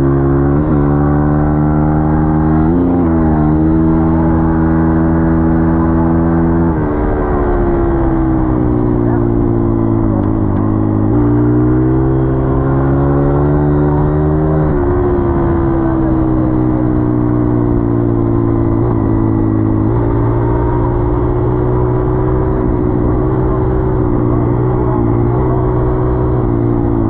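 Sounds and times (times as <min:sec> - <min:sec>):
dirt bike engine revving: 0:09.1 - 0:27.0.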